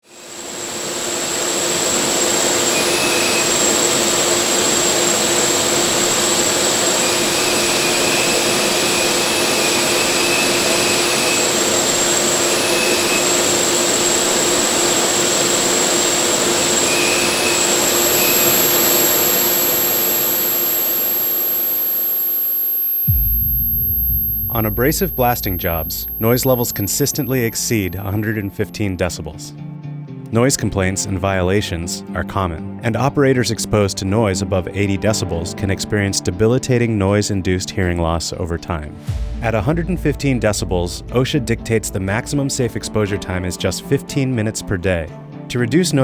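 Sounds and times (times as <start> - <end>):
thin high whistle: 2.2 - 5.7, 6.3 - 14.6, 16.3 - 28.7
higher whistle: 2.7 - 4.0, 16.7 - 28.6.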